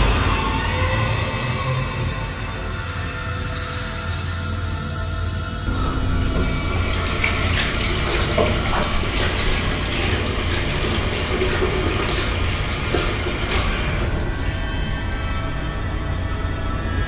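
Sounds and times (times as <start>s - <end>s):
tap running into sink: 5.7s - 14.5s.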